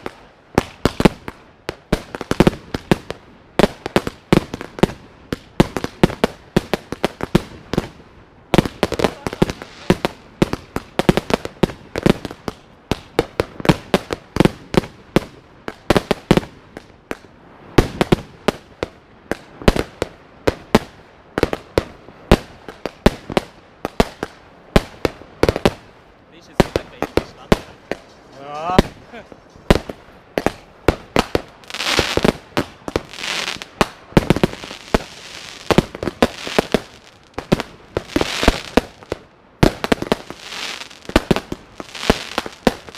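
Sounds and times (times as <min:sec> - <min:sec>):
firework bursts popping and crackling: 0:00.0 - 0:42.9
fireworks firing rapid shots: 0:08.6 - 0:17.2, 0:17.8 - 0:42.9.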